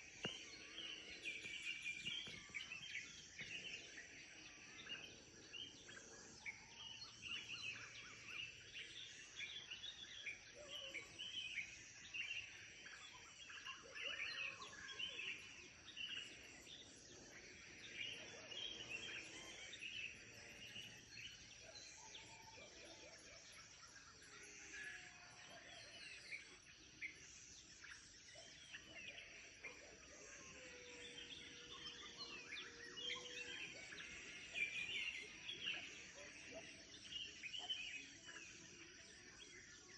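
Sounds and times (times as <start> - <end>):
birds chirping and calling: 0.0 - 4.1.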